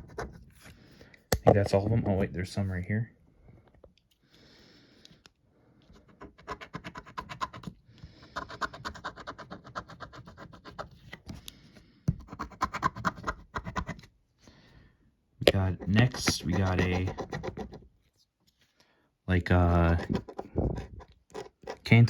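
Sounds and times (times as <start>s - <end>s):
lottery ticket being scratched: 15.5s - 17.8s, 19.4s - 22.0s.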